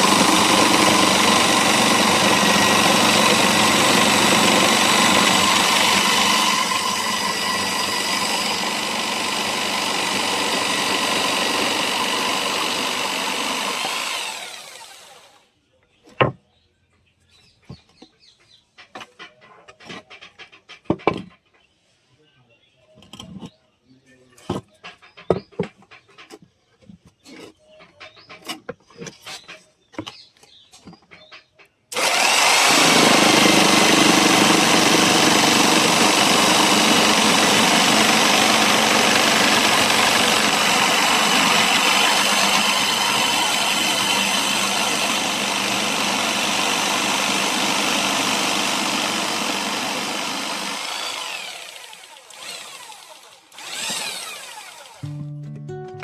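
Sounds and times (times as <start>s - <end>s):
electric jigsaw sawing wood: 0.0s - 15.4s, 31.9s - 55.1s.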